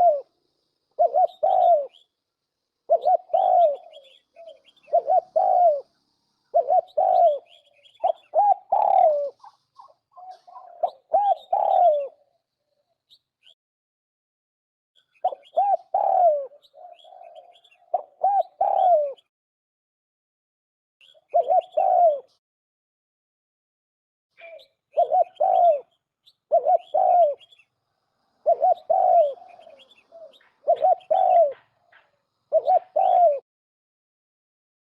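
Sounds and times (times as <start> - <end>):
dove cooing: 0.0 - 0.4, 1.0 - 2.1, 2.9 - 12.4, 15.1 - 19.3, 21.0 - 22.4, 24.4 - 27.6, 28.4 - 33.4
small birds chirping: 0.0 - 13.6, 15.0 - 19.3, 21.0 - 22.4, 24.3 - 33.4.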